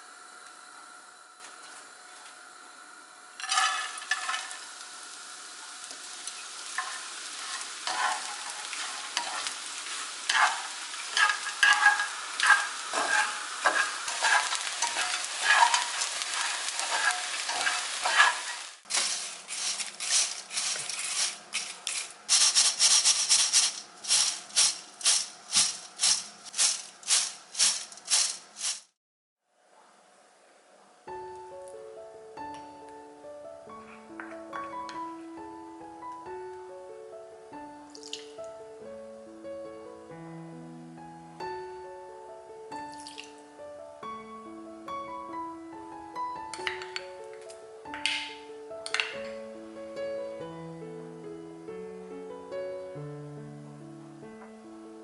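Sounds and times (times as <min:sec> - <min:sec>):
spatula stirring in a pan: 0:03.4 - 0:04.6, 0:06.3 - 0:28.9
anchovies sizzling in a pan: 0:03.4 - 0:29.0.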